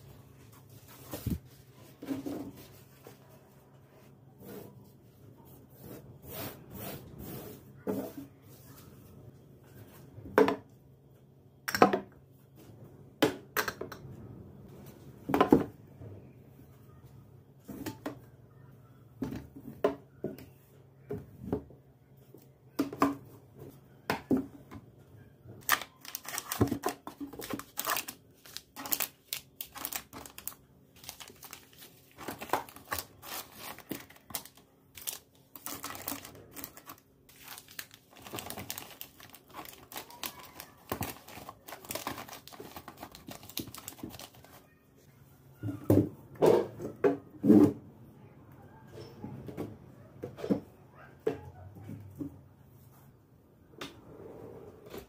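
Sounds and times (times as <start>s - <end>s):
kitchen knocks and clatters: 10.3s - 10.7s, 11.6s - 12.2s, 13.2s - 14.1s, 15.3s - 15.8s
plastic or paper crinkling: 25.6s - 44.6s.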